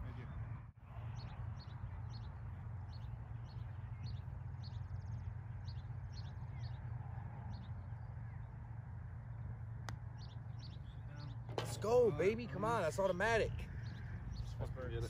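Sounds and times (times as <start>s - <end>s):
songbird chirping: 0.3s - 15.0s.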